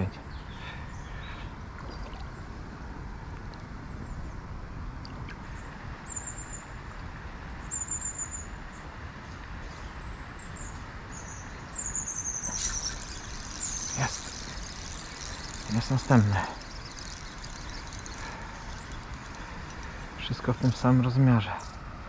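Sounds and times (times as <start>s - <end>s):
songbird trilling: 12.2s - 21.2s.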